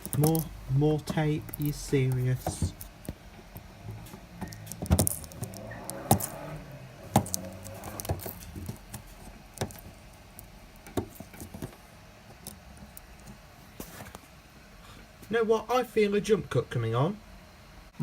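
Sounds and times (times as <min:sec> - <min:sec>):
sticky tape peeling: 0:01.1 - 0:11.7.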